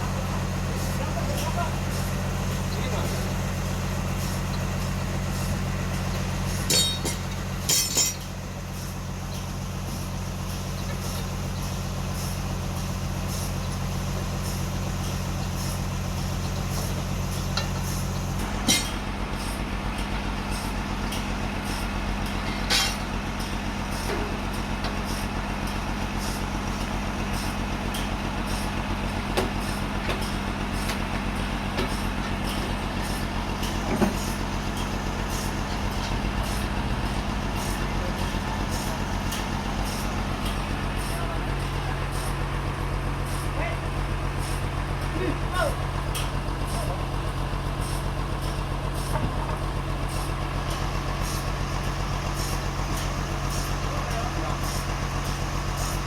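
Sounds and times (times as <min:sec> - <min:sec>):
sawmill engine running: 0:00.0 - 0:56.0
sharp metallic clanks: 0:06.6 - 0:08.3, 0:17.6 - 0:19.0, 0:22.4 - 0:23.1.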